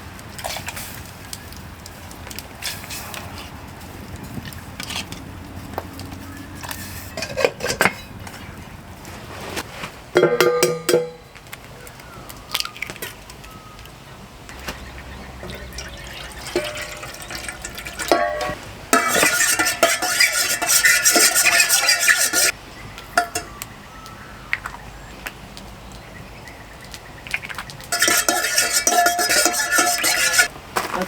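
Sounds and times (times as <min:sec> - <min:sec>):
metal utensils scraping in pot: 0:06.6 - 0:08.5, 0:14.5 - 0:22.6, 0:23.2 - 0:23.6, 0:27.9 - 0:30.5
liquid being poured: 0:14.5 - 0:22.5, 0:27.3 - 0:30.5.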